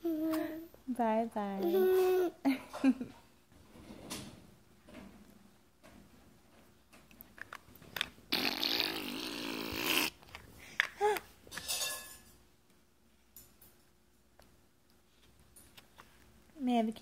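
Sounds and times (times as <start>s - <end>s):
toddler blowing raspberry: 8.3s - 10.2s.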